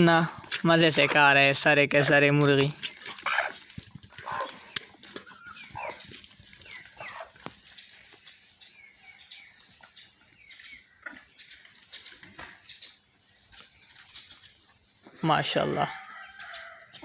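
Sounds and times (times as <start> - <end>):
hens clucking: 0.5 - 8.2
chicks peeping: 2.6 - 13.0.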